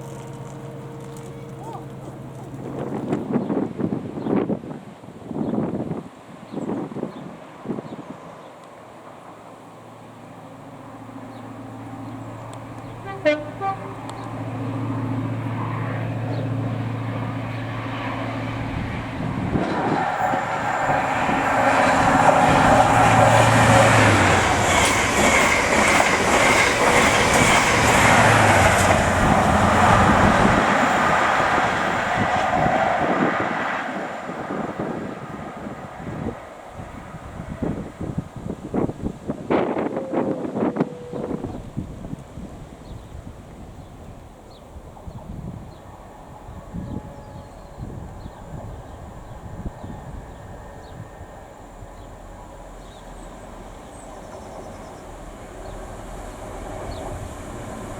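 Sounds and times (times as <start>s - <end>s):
diesel train engine: 0.0s - 5.2s, 6.1s - 57.9s
train wheel and rail noise: 0.0s - 57.9s
train horn toot: 12.9s - 14.3s, 19.5s - 24.8s, 39.6s - 41.7s, 46.2s - 48.1s.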